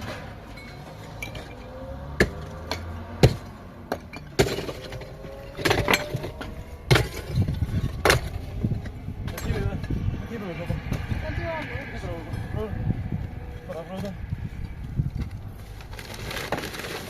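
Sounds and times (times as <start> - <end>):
hard objects knocking and clinking: 0.0 - 10.0.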